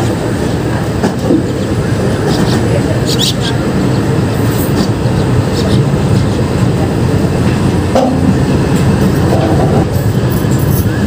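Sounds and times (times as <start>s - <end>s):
train rumble: 0.0s - 11.0s.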